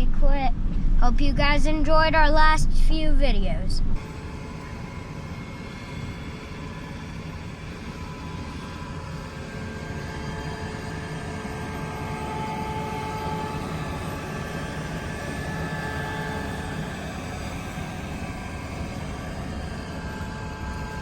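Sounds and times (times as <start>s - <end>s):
steady whine: 0.0s - 21.0s.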